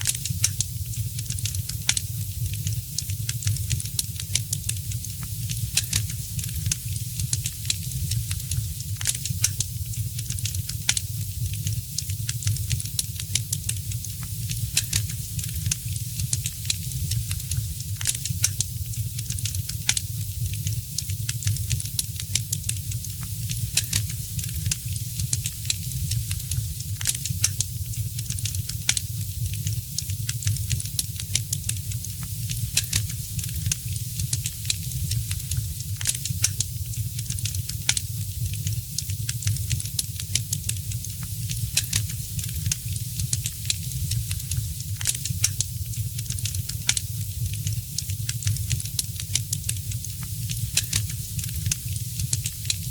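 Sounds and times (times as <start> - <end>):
low rumble of burning fire: 0.0 - 52.9
wood fire crackling and popping: 0.0 - 52.9.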